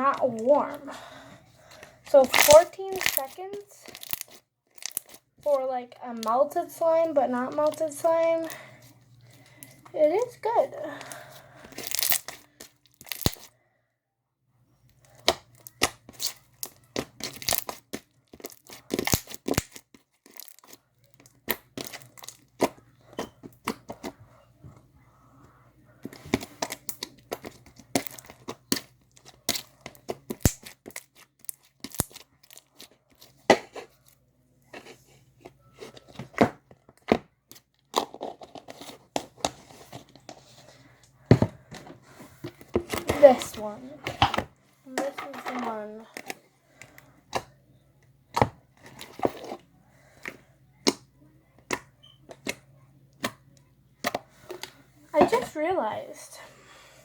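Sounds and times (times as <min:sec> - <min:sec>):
slime squishing with sticky pops: 0:01.8 - 0:08.6, 0:11.7 - 0:13.5, 0:14.9 - 0:24.2, 0:25.5 - 0:34.2, 0:50.2 - 0:55.4.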